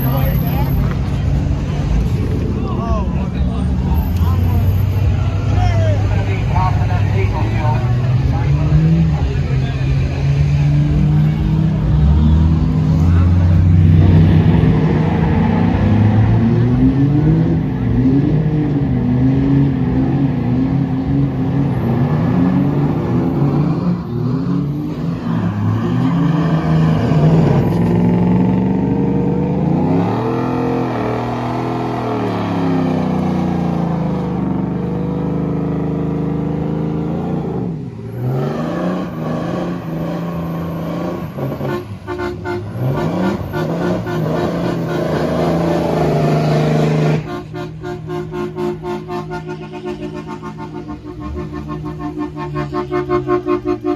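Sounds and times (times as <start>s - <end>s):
truck engine revving: 0.0s - 53.9s.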